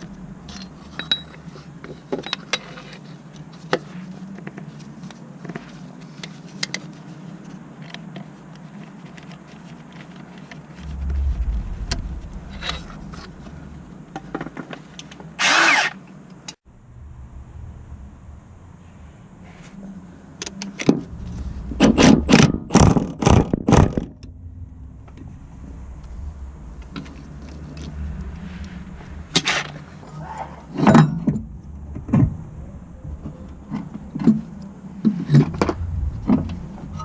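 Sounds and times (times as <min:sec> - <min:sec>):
low steady hum: 0:00.0 - 0:03.0, 0:10.8 - 0:15.4, 0:16.1 - 0:37.0.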